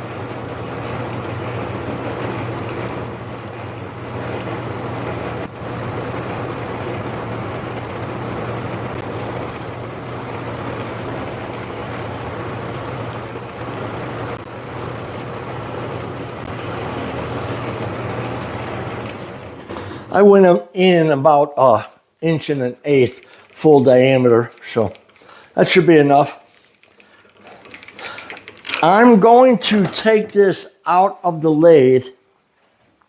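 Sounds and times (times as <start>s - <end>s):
lathe motor hum: 0.0s - 20.2s
high squeals from drill cutting: 5.6s - 19.6s.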